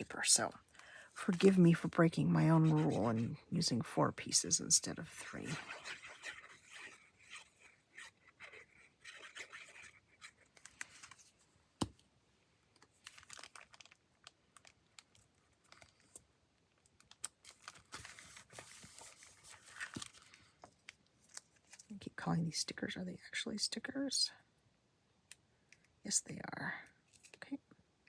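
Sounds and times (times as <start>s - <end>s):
paper tearing and rustling: 17.4s - 20.3s.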